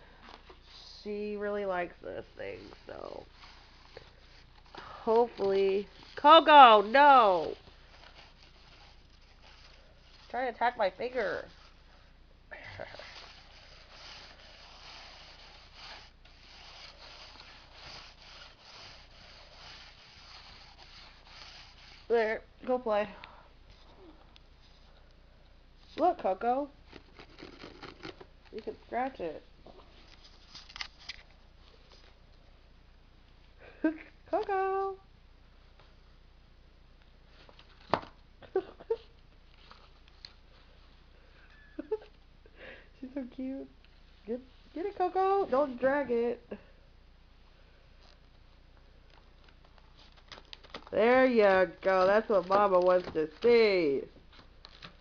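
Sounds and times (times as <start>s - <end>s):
cat scratcher rasping strokes: 0.6s - 12.0s, 12.7s - 22.5s.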